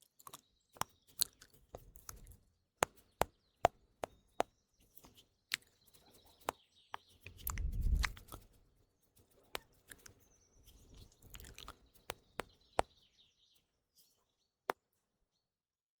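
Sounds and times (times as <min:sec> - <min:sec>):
faint birdsong: 0:00.0 - 0:15.9
wet mouth clicks and smacks: 0:00.1 - 0:02.3, 0:07.3 - 0:08.4, 0:09.6 - 0:12.5.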